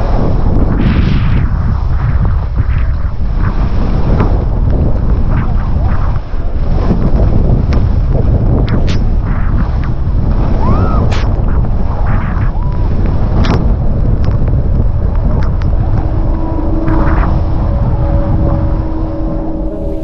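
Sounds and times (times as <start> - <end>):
steady hum: 0.0 - 20.0
wind buffeting microphone: 0.0 - 20.0.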